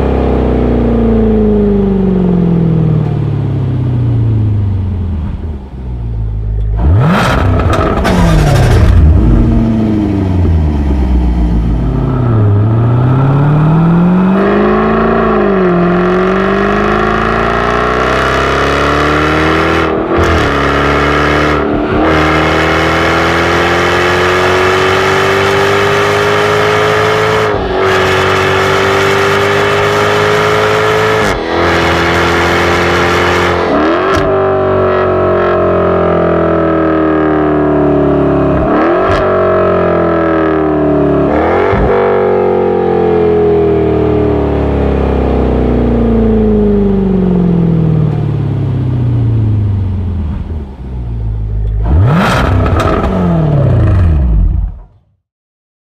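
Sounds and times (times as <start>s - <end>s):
car engine revving: 0.0s - 54.9s.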